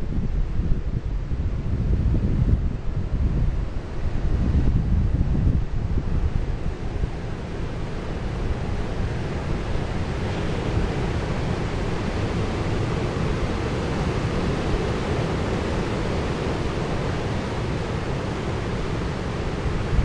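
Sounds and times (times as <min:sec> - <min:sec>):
wind rumble on microphone: 0:00.0 - 0:20.0
sea waves and surf: 0:06.2 - 0:20.0.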